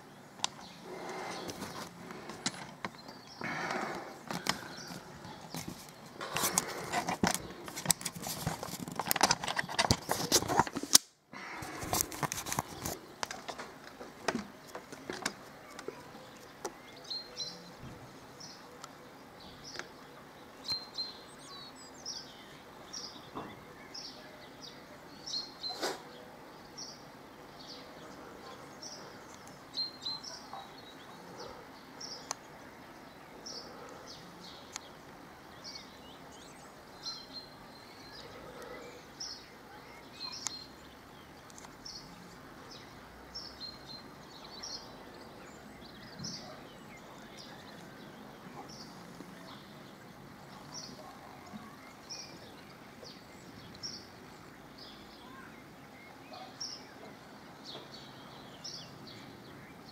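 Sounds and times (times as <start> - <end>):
faint outdoor background noise: 0.0 - 59.9
songbirds chirping: 0.0 - 59.9.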